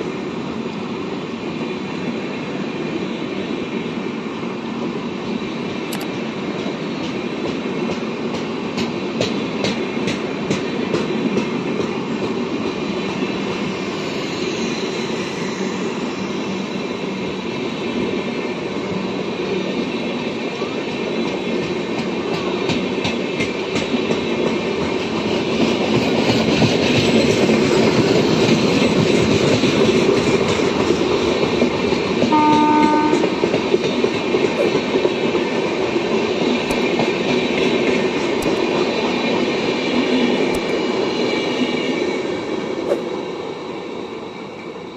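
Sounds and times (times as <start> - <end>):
train wheels rushing on rail: 0.0 - 44.9
train horn blast: 32.3 - 33.4.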